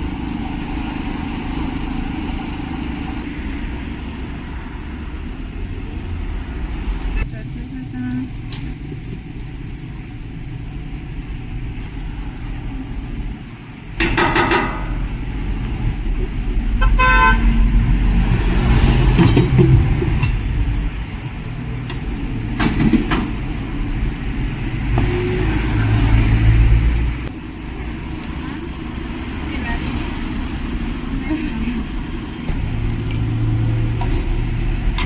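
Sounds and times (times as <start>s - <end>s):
vehicles rumbling past: 0.0s - 35.0s
car horn: 16.8s - 17.6s.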